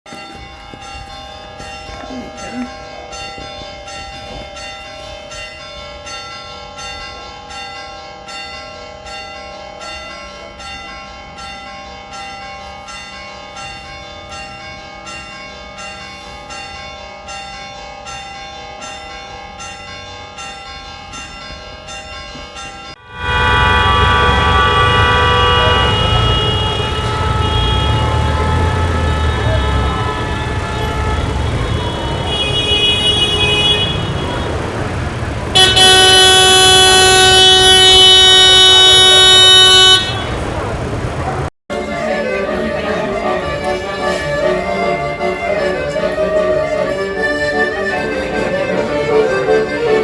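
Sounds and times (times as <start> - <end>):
church bells ringing: 0.0 - 50.0
car horns honking: 23.0 - 50.0
engine rumble: 23.2 - 50.0.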